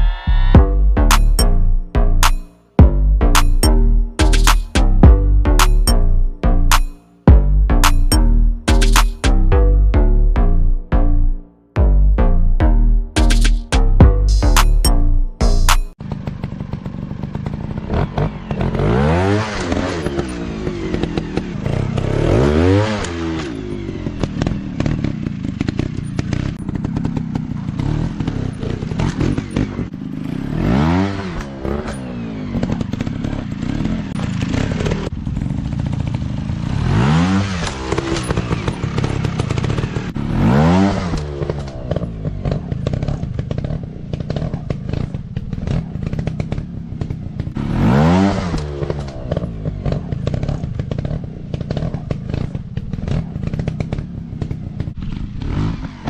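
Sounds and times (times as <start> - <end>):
dirt bike engine revving: 0.0 - 56.0
bike clattering over rough ground: 40.9 - 47.6, 48.4 - 56.0.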